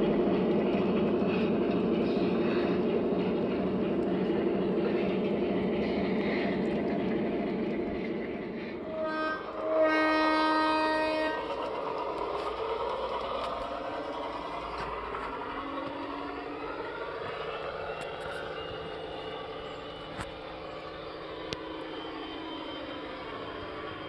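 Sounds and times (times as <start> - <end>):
horn blasts: 8.8 - 11.5
vehicle running noise: 11.4 - 23.8.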